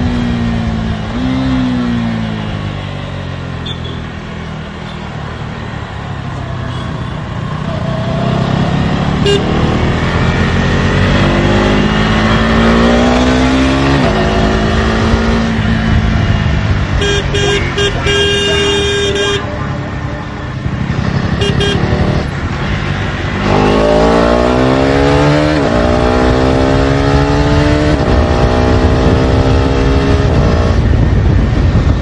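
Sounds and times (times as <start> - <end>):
motorcycle engine accelerating: 0.0 - 4.0, 7.5 - 19.4, 20.5 - 32.0
horns honking: 9.2 - 9.8, 16.9 - 22.3.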